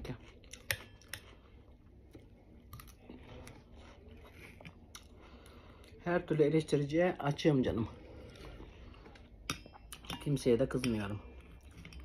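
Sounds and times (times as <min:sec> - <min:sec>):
faint chewing: 0:00.0 - 0:06.0, 0:11.3 - 0:12.0.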